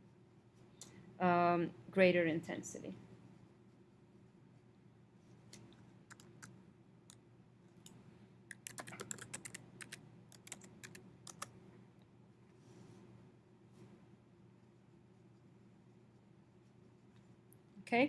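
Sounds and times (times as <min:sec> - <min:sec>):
faint steady hum: 0:00.0 - 0:18.0
computer keyboard typing: 0:06.1 - 0:06.5, 0:08.5 - 0:11.5.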